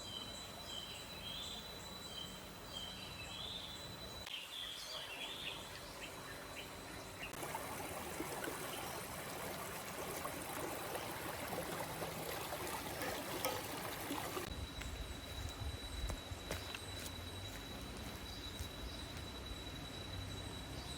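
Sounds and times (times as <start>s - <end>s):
stream water trickling: 5.0s - 20.8s
high-pitched insect drone: 14.4s - 20.9s.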